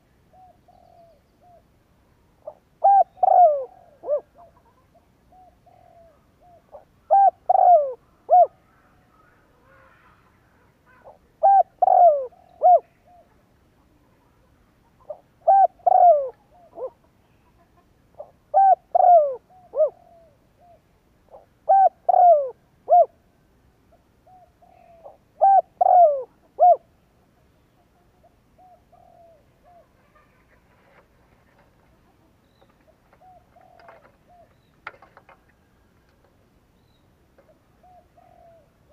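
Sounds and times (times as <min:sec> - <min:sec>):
dove cooing: 0:00.3 - 0:01.7, 0:02.4 - 0:08.7, 0:10.8 - 0:13.5, 0:14.9 - 0:23.2, 0:24.2 - 0:27.0, 0:27.8 - 0:35.8, 0:37.4 - 0:38.9.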